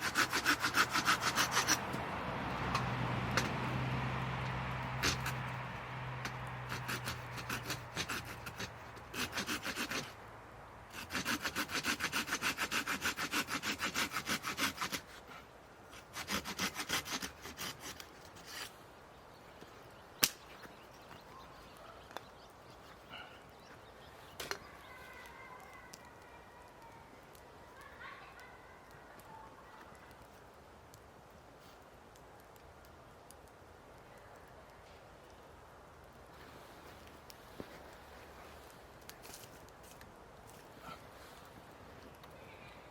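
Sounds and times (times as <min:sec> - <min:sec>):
hand saw cutting wood: 0:00.0 - 0:02.0, 0:05.0 - 0:05.5, 0:06.2 - 0:10.2, 0:10.9 - 0:15.3, 0:15.9 - 0:18.8.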